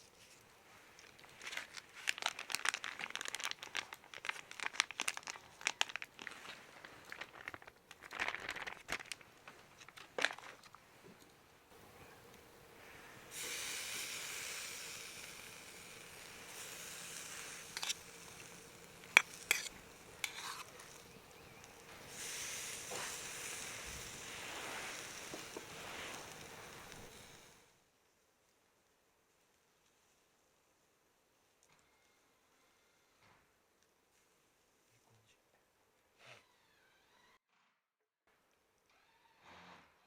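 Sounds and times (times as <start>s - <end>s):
meat sizzling on a grill: 11.8s - 27.6s.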